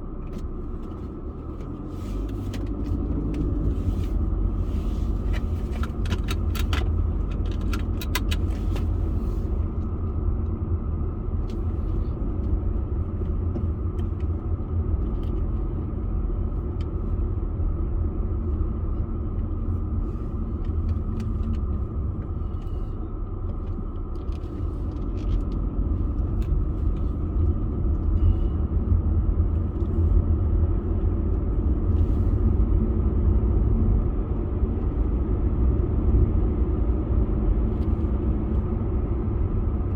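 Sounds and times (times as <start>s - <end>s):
car driving rumble: 0.0s - 39.9s.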